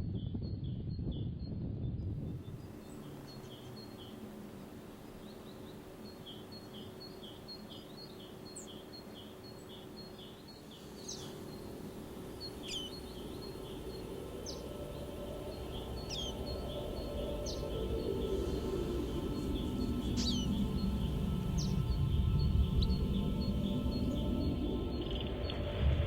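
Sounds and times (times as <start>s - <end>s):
sliding whistled bird notes: 10.9s - 26.0s.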